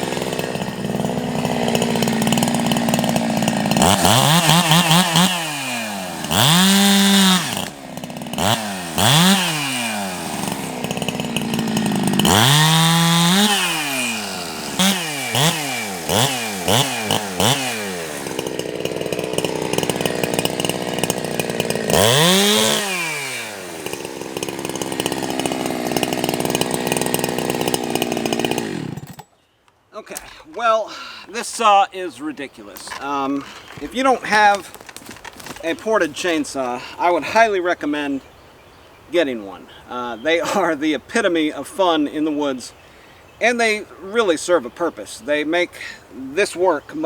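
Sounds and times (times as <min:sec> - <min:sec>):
chainsaw cutting wood: 0:00.0 - 0:29.4, 0:30.1 - 0:37.4, 0:39.9 - 0:40.8.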